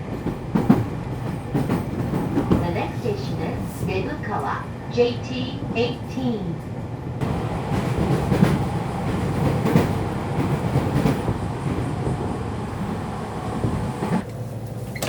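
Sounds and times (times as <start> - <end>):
rail joint clacks: 0.0 - 4.6
train wheels rumbling on rails: 0.0 - 15.0.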